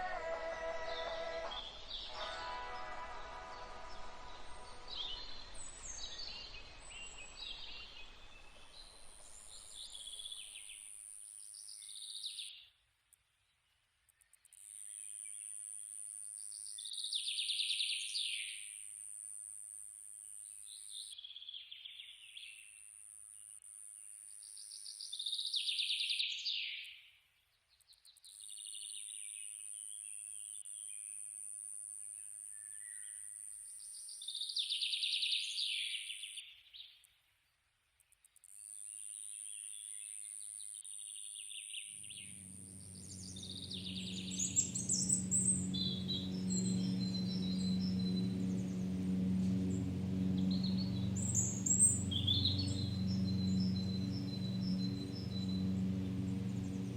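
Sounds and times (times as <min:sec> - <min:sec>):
high-pitched insect drone: 0:42.0 - 0:56.9
small birds chirping: 0:42.0 - 0:56.9
lawnmower engine hum: 0:42.2 - 0:56.9.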